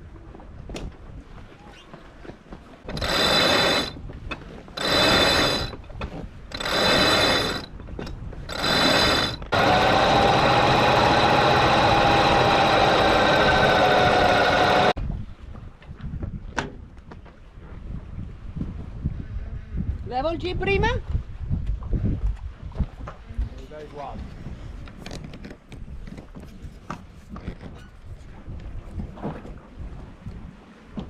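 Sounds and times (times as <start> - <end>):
electric winch whining: 2.9 - 4.0, 4.8 - 5.8, 6.5 - 7.7, 8.5 - 15.0.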